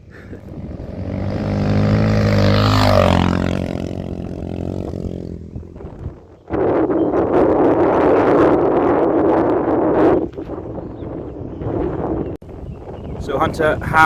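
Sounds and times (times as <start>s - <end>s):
dirt bike passing by: 0.0s - 6.2s.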